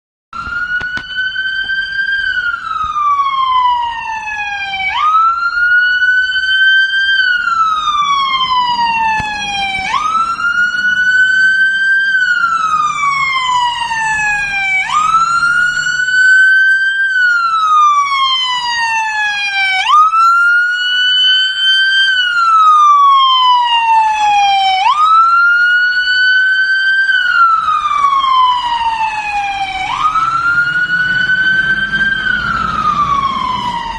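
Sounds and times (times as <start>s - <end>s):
fire engine siren wailing: 0.3s - 33.9s
truck engine rumbling: 0.4s - 33.9s.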